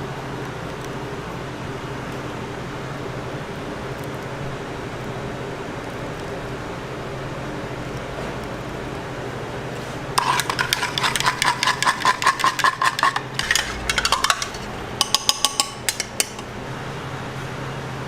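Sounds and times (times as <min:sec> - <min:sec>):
steady hum: 0:08.6 - 0:18.0
metal utensils clinking: 0:10.2 - 0:16.5.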